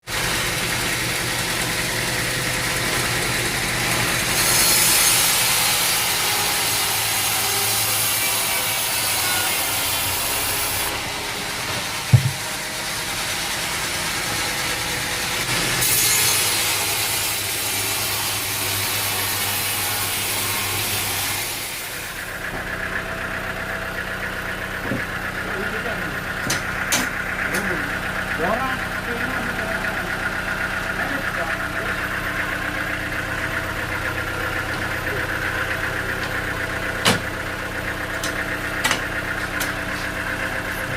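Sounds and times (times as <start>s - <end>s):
sawmill engine running: 0.0s - 40.9s
saw cutting through log: 0.1s - 40.9s
sharp knock: 12.1s - 12.4s.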